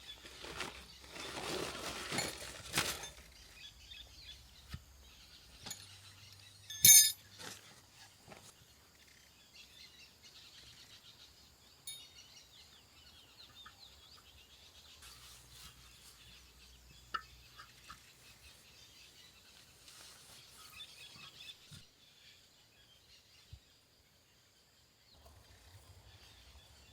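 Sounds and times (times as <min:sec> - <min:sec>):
faint birdsong: 0:00.0 - 0:26.9
loud sharp ringing clink: 0:06.7 - 0:07.2.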